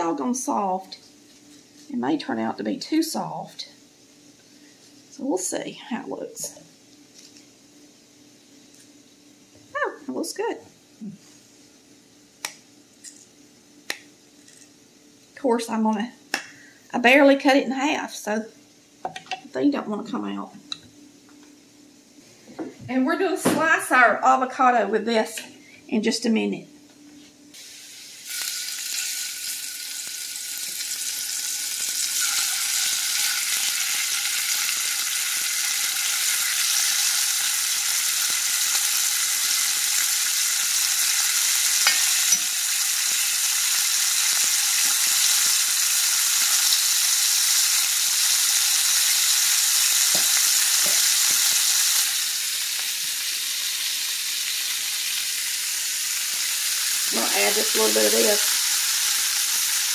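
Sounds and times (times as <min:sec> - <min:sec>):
chicken sizzling in hot oil: 0:27.6 - 0:59.9.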